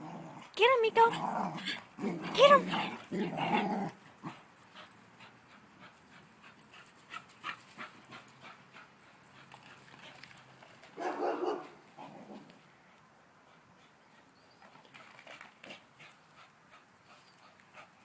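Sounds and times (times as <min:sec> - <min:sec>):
dog vocalisation: 0:01.0 - 0:04.0.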